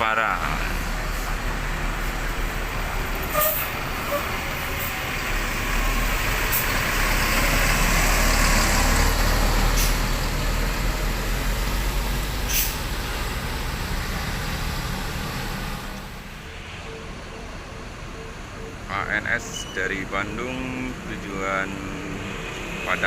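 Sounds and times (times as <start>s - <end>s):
diesel bus engine running: 0.0s - 23.0s
air hissing: 12.4s - 12.9s.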